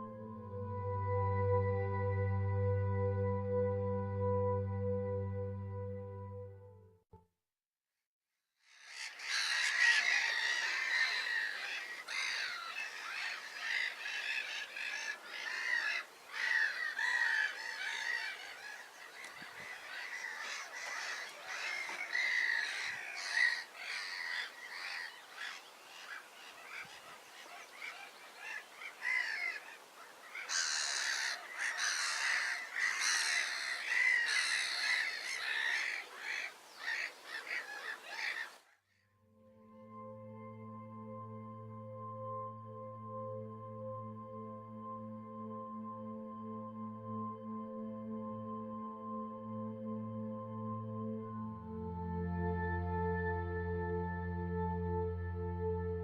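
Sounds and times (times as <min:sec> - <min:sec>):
waterbirds calling: 0:08.8 - 0:38.7.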